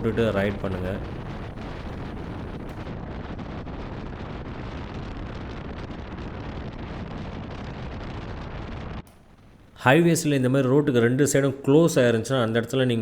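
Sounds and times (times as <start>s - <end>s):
wind rushing over microphone: 0.0s - 9.8s.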